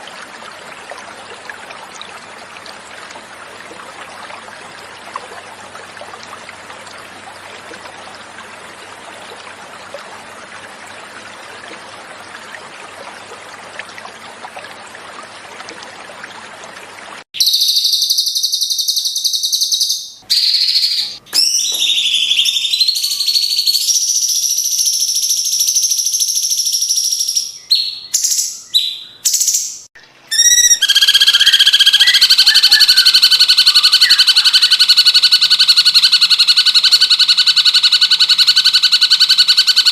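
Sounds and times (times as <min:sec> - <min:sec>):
stream water flowing: 0:00.0 - 0:17.3
bird trill: 0:17.4 - 0:39.9
bird whistling song: 0:17.4 - 0:39.9.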